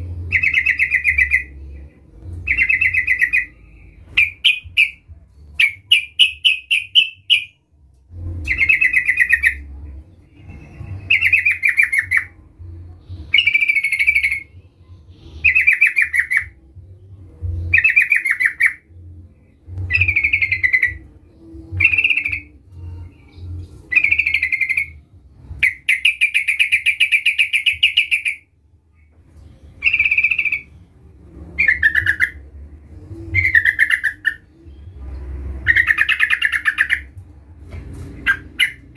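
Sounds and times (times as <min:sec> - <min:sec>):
bird singing chattering phrases: 0:00.3 - 0:01.6, 0:04.2 - 0:05.0, 0:05.6 - 0:07.6, 0:15.4 - 0:16.6, 0:33.3 - 0:35.0, 0:35.6 - 0:37.2, 0:38.2 - 0:38.9.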